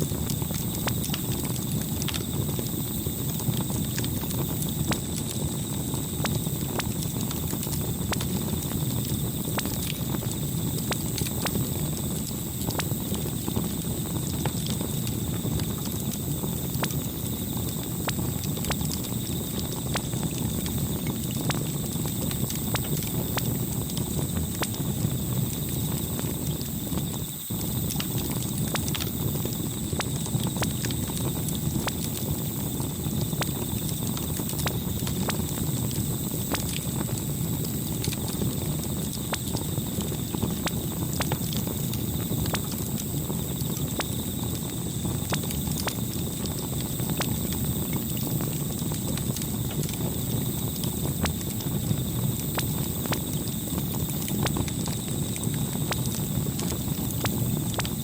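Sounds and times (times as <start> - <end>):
burning wood crackling and popping: 0.0 - 58.0
low rumble of flames: 0.0 - 58.0.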